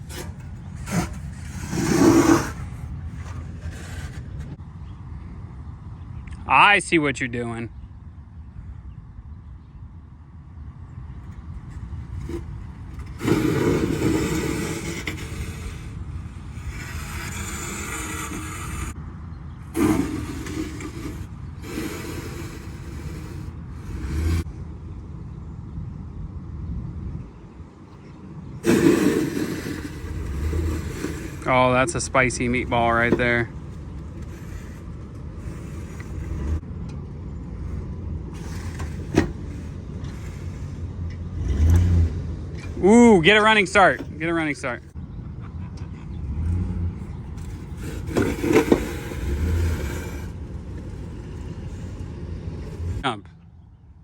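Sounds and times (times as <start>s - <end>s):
rough rushing scraping noise: 0.0s - 4.6s, 12.0s - 19.0s, 19.6s - 24.5s, 28.6s - 36.6s, 37.6s - 44.9s, 46.5s - 53.2s
engine rumbling: 0.0s - 54.0s
vehicle engine revving: 19.7s - 24.6s, 28.6s - 36.6s, 37.4s - 42.8s, 45.8s - 53.0s.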